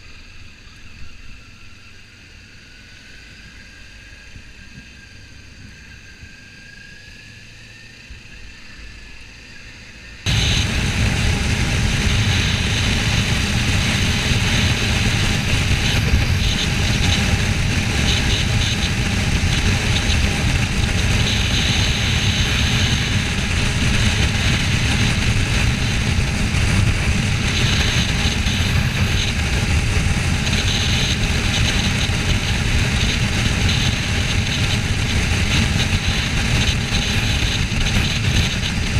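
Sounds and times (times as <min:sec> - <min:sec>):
motorcycle engine running: 0:10.3 - 0:38.9
wind noise on microphone: 0:10.3 - 0:38.9.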